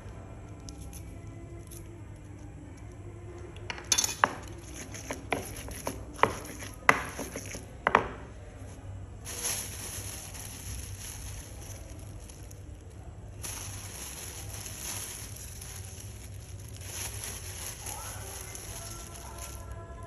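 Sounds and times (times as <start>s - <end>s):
utensils clinking against dishes: 3.7s - 7.6s
steady hiss: 9.2s - 19.8s.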